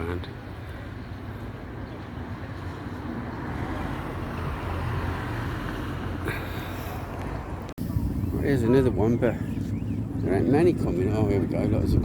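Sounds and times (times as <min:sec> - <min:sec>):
vehicle engine passing: 0:02.5 - 0:07.7.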